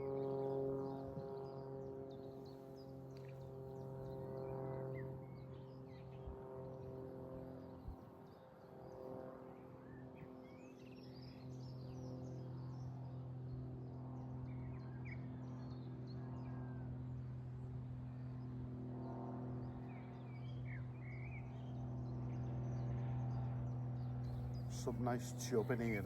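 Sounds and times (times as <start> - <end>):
steady low hum: 24.2 - 26.0
small birds chirping: 24.3 - 26.0.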